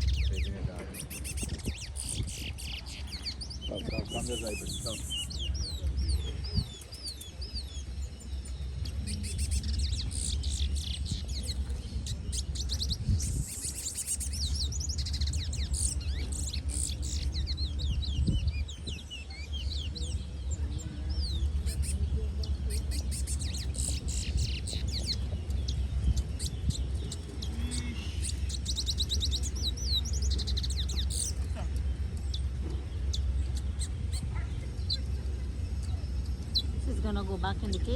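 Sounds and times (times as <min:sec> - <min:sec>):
birds chirping: 0:00.0 - 0:37.9
steady low rumble: 0:00.0 - 0:37.9.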